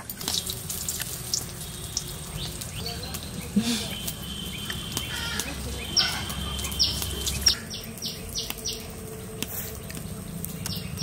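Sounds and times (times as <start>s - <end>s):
bird chirping: 0.3s - 11.0s.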